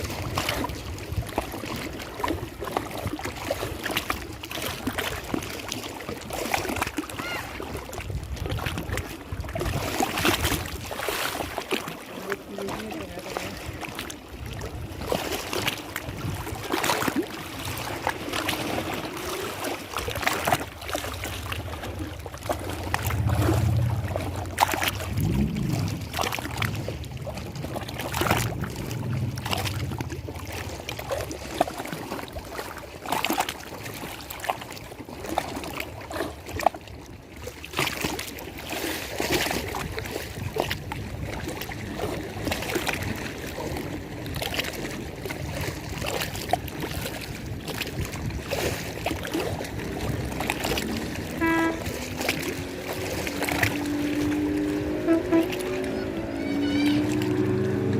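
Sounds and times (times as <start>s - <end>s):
water lapping and splashing: 0.0s - 57.9s
low rumble: 21.0s - 31.4s.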